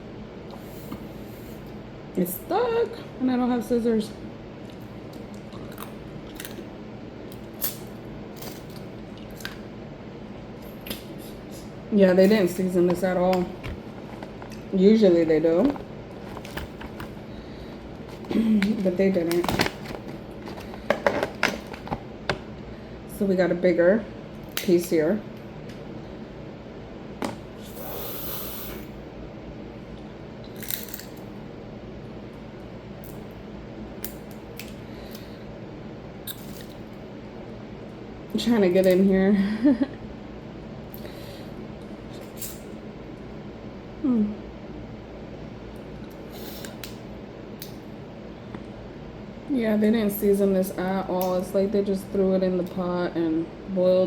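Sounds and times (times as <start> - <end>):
crab shell cracking: 30.5 - 31.3.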